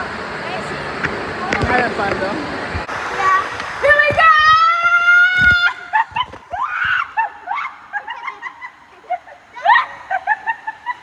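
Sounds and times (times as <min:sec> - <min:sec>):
children shrieking and laughing: 0:03.2 - 0:11.0
child whooping: 0:09.5 - 0:10.2.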